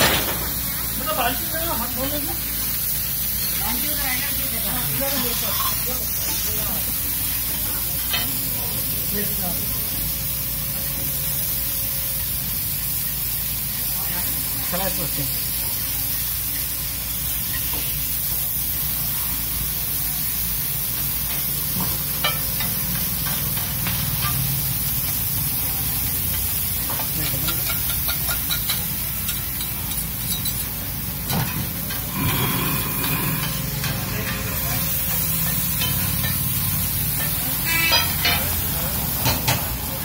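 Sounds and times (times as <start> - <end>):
food sizzling on a metal griddle: 0.0 - 40.0
metal spatula scraping a pan: 37.2 - 38.5.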